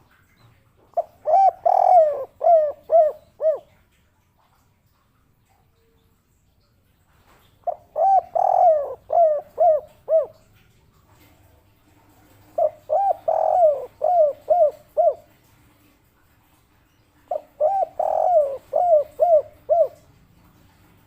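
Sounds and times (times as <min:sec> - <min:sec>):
dove cooing: 0:00.9 - 0:03.8, 0:07.6 - 0:10.5, 0:12.3 - 0:15.4, 0:17.3 - 0:20.2.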